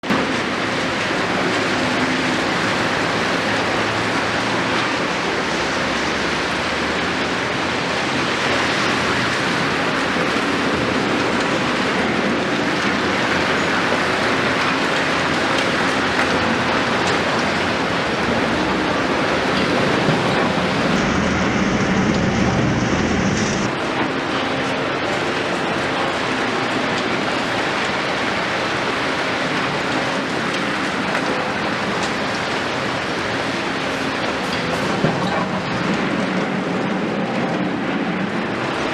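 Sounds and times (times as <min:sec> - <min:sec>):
excavator diesel engine running: 0:00.1 - 0:38.9
heavy rain hissing: 0:00.2 - 0:23.9
rain hissing: 0:16.5 - 0:23.7.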